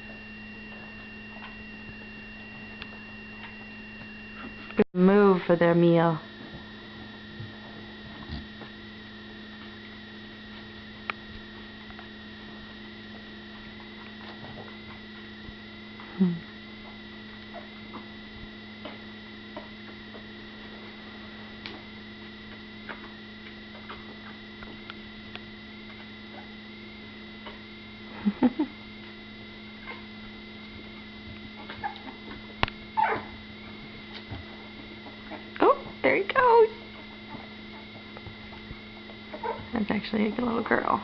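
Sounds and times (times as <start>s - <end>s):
mains hum: 0.0s - 41.0s
puppies squeaking: 31.6s - 32.3s, 33.0s - 33.4s, 39.3s - 39.7s.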